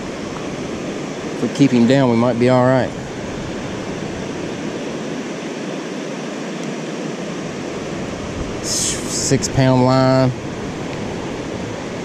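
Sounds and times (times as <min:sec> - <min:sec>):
river water rushing: 0:00.0 - 0:12.0
high hiss: 0:08.6 - 0:09.7.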